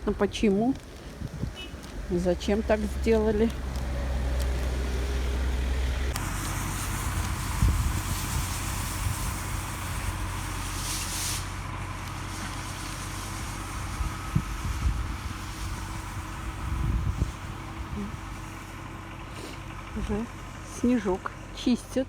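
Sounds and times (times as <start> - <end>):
wind buffeting microphone: 0.0 - 10.4, 13.0 - 18.4
vehicle engine hum: 0.0 - 22.0
high hiss: 6.1 - 18.7.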